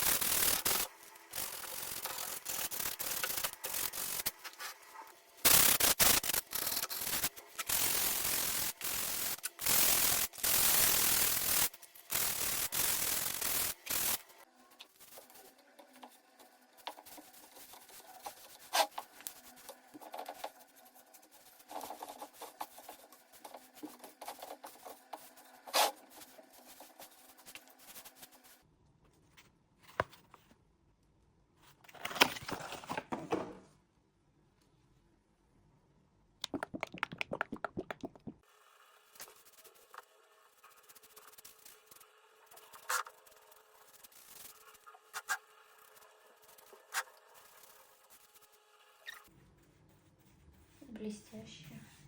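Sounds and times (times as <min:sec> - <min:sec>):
sandpaper rubbing on wood: 0:00.0 - 0:04.4, 0:05.5 - 0:14.3, 0:40.5 - 0:48.6.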